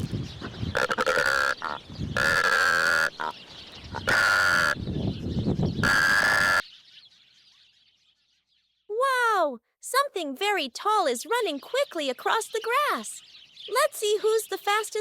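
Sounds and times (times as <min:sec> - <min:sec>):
nasal honking bird calls: 0:00.4 - 0:04.8, 0:05.8 - 0:06.6.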